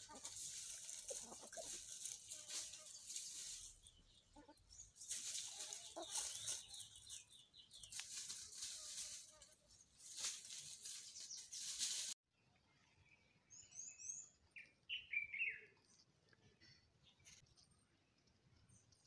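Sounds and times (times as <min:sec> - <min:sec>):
chickens clucking softly: 0:00.0 - 0:02.7, 0:04.2 - 0:07.0
rustling: 0:00.0 - 0:04.0, 0:04.8 - 0:12.2.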